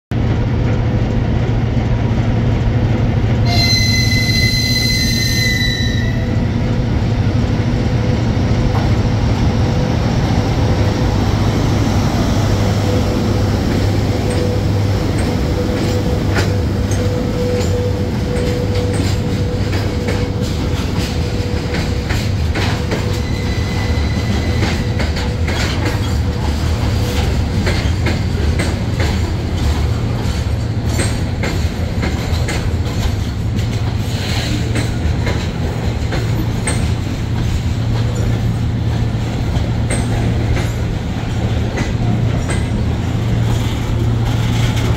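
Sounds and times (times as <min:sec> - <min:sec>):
locomotive rumbling: 0:00.1 - 0:44.9
locomotive whistle blast: 0:03.4 - 0:06.5, 0:23.2 - 0:24.8
wheels clacking over rail joints: 0:10.4 - 0:44.9.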